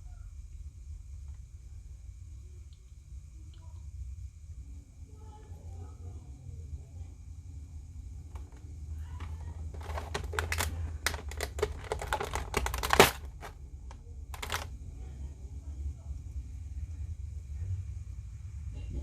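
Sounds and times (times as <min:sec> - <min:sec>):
low steady hum: 0:00.0 - 0:19.0
plastic packaging crinkling: 0:08.3 - 0:13.6, 0:14.3 - 0:14.7.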